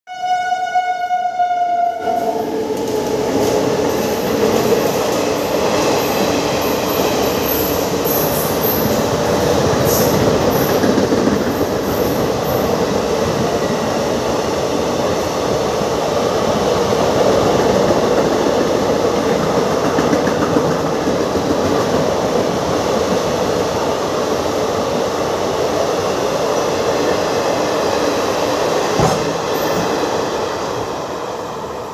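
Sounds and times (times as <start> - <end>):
train horn: 0.1 - 2.5
train coaches rushing and rattling: 2.0 - 31.9.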